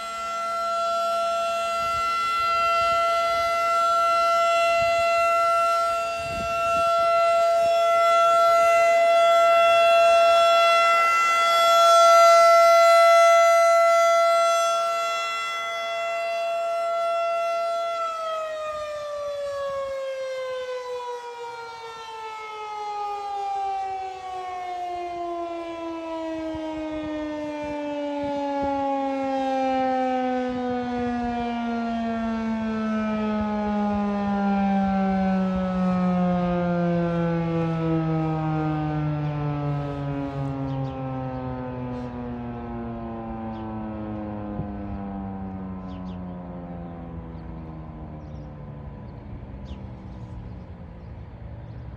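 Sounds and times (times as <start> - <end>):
warning siren: 0.0 - 51.9.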